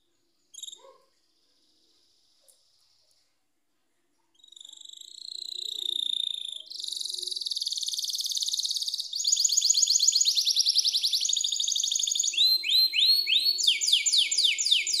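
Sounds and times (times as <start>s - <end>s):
canary singing: 4.4s - 15.0s.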